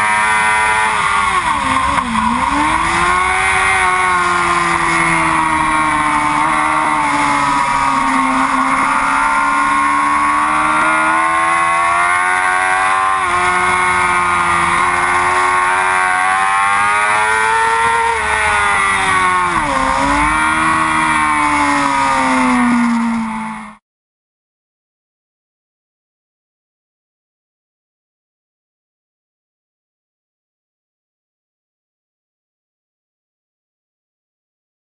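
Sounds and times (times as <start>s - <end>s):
motorcycle engine at high revs: 0.0s - 23.8s.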